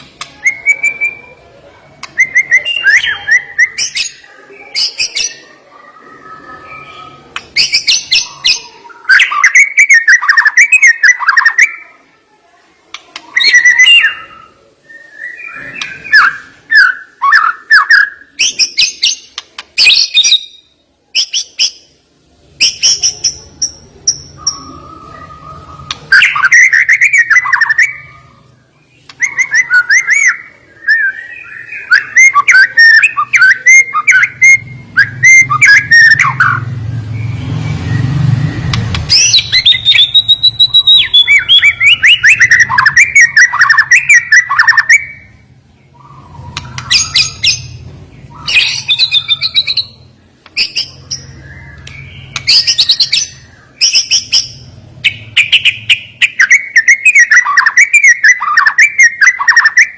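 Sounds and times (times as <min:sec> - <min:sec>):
bird singing rapid notes: 0:22.6 - 0:59.9.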